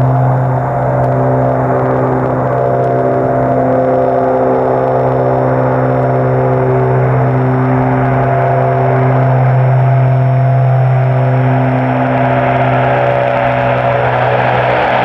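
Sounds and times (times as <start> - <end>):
turboprop engines droning: 0.0 - 15.0.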